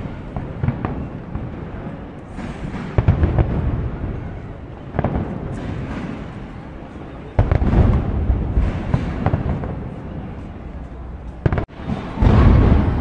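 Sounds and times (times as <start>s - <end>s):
fireworks crackling bursts: 0.0s - 13.0s
fireworks heavy boom: 0.0s - 13.0s.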